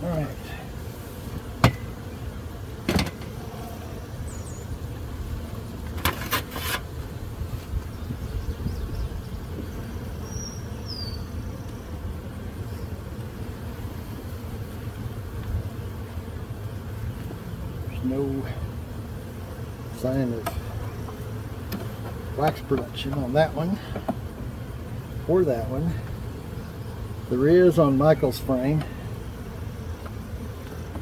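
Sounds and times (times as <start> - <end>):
bees humming: 0.0 - 31.0
hive tool knocking on wood: 1.3 - 2.0, 2.8 - 3.4, 20.4 - 24.5
bird chirping: 4.2 - 4.7, 7.9 - 11.9.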